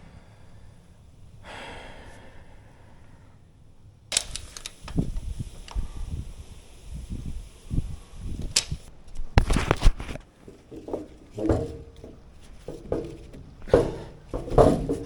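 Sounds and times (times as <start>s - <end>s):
tools knocking and clunking: 8.4s - 15.0s.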